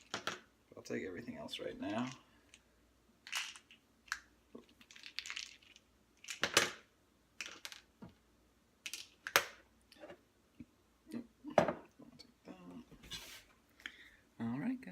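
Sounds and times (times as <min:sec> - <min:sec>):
pill bottles clicking and rattling: 0:01.8 - 0:02.6, 0:03.2 - 0:07.9, 0:08.8 - 0:09.6.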